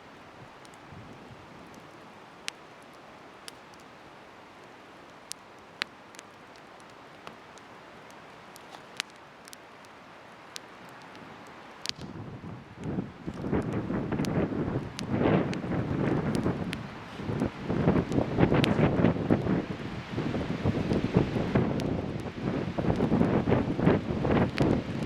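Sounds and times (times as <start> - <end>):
bonfire hissing: 0.0 - 25.0
wood crackling and popping: 0.0 - 25.0
wind gusts on microphone: 11.2 - 25.0.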